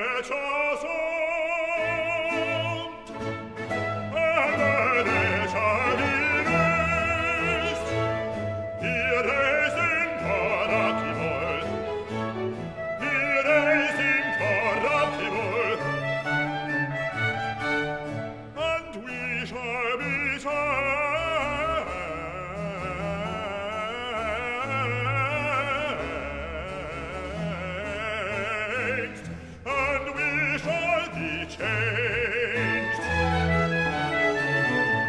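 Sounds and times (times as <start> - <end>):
orchestra playing: 0.0 - 35.0
operatic bass voice singing: 4.1 - 8.1, 8.8 - 12.0, 18.6 - 33.5.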